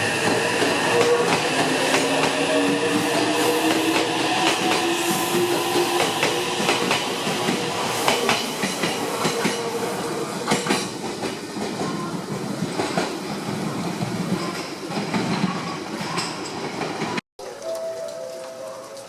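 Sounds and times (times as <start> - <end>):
train wheels clicking over rail joints: 10.4 - 17.2.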